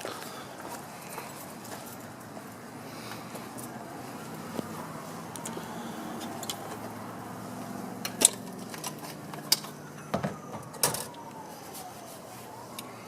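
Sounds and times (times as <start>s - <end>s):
distant siren: 0.0s - 13.0s.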